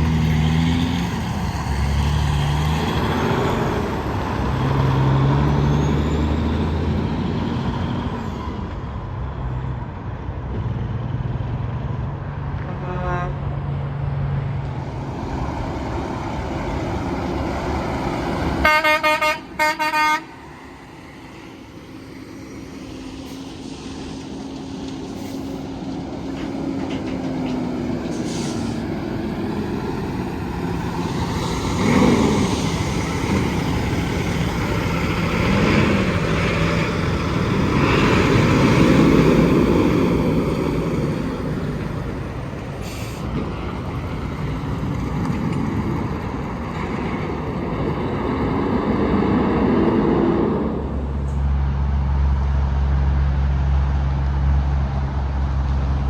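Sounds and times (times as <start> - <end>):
heavy trucks and traffic passing: 0.0 - 56.0
truck air horn blasts: 12.6 - 13.5, 18.6 - 20.4.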